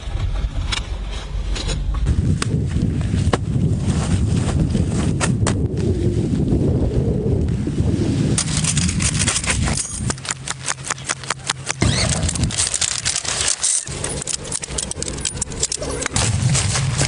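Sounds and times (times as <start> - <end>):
low rumble: 0.0 - 17.0
dense clicking and rattling: 8.4 - 17.0.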